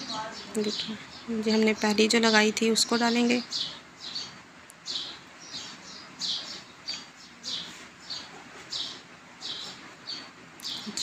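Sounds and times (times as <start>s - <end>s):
small bird chirping: 0.0s - 11.0s.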